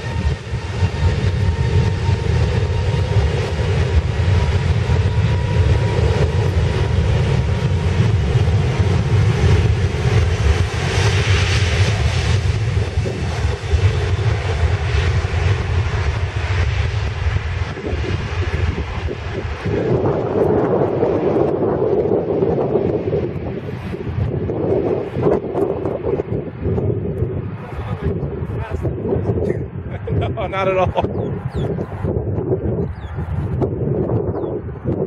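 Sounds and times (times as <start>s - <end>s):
jet engines roaring: 0.0s - 35.0s.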